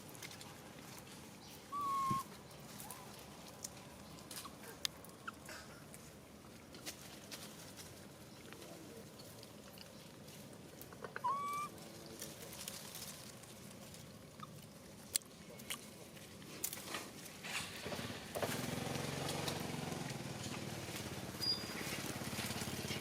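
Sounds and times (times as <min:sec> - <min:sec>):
small engine running: 0:17.6 - 0:23.0.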